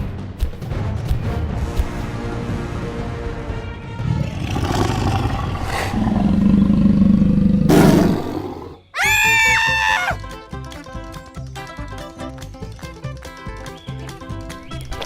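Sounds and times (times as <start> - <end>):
background music: 0.0 - 7.1, 8.0 - 15.0
big cat roaring: 4.0 - 8.8.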